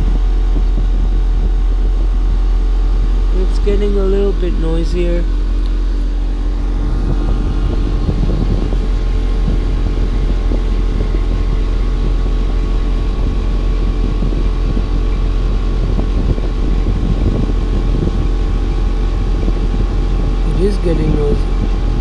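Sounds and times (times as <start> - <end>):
air conditioner humming: 0.0 - 22.0.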